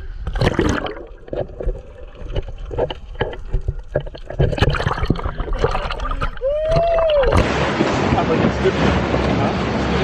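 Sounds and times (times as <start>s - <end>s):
water splashing and sloshing: 0.0s - 10.0s
small knocks and gurgles: 0.2s - 7.6s.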